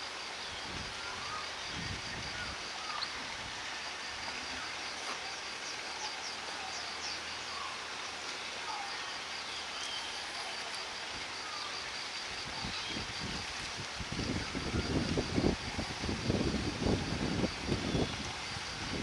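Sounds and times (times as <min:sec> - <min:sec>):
steady outdoor hiss: 0:00.0 - 0:19.0.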